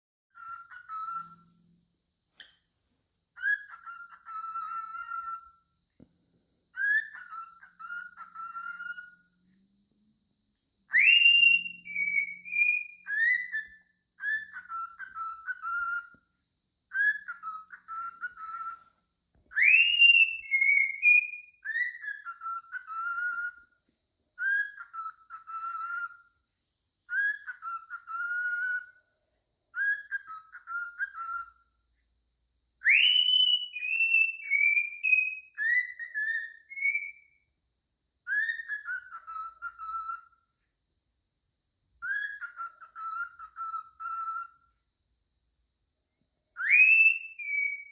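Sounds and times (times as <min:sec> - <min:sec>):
cockatiel whistling a tune: 0:00.3 - 0:01.6, 0:03.4 - 0:05.7, 0:06.7 - 0:09.3, 0:10.8 - 0:23.8, 0:24.4 - 0:26.4, 0:27.1 - 0:29.1, 0:29.7 - 0:31.8, 0:32.8 - 0:37.5, 0:38.2 - 0:40.6, 0:42.0 - 0:44.8, 0:46.5 - 0:47.9.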